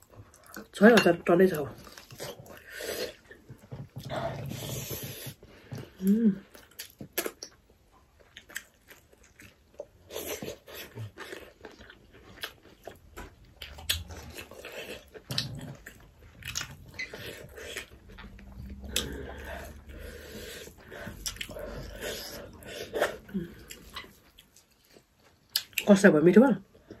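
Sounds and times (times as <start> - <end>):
close-miked chewing and biting: 1.6 - 26.0.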